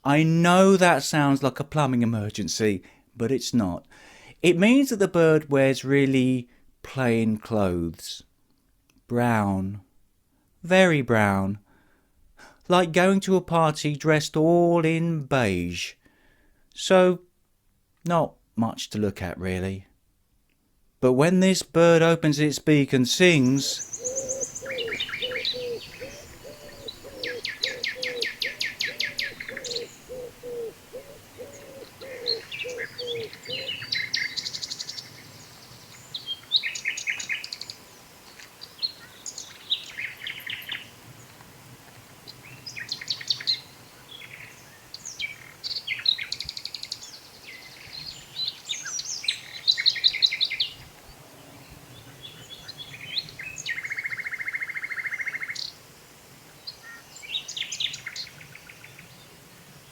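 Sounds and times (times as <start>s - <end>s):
songbird singing trills: 23.2s - 40.9s, 42.3s - 50.9s, 51.5s - 55.8s, 56.6s - 59.9s.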